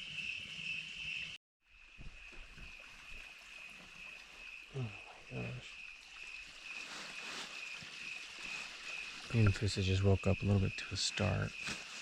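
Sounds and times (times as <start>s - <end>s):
short low falling calls: 4.7s - 5.8s
high-pitched night chorus: 4.8s - 5.8s.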